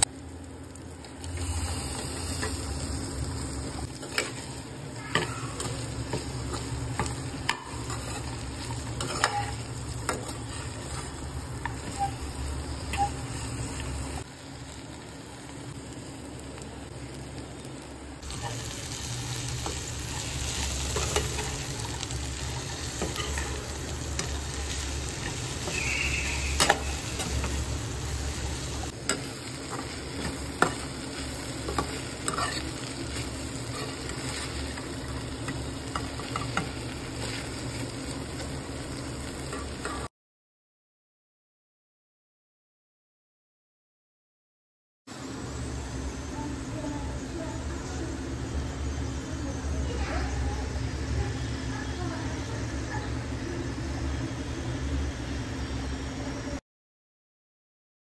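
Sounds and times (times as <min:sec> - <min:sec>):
okra sizzling in hot oil: 0:00.0 - 0:40.1, 0:45.1 - 0:56.6
spoon stirring and scraping: 0:05.2 - 0:12.2, 0:28.6 - 0:34.6.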